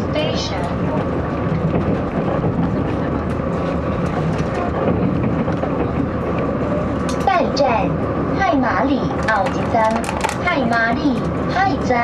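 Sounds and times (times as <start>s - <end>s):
railcar running gear rumbling: 0.0s - 12.0s.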